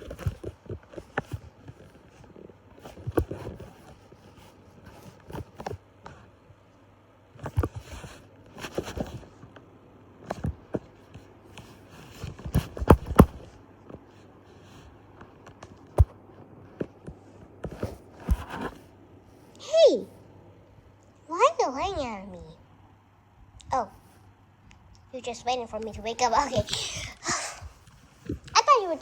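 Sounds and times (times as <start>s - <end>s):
handling knocks and bumps: 12.2s - 13.6s
rustling scrapes: 17.7s - 18.9s.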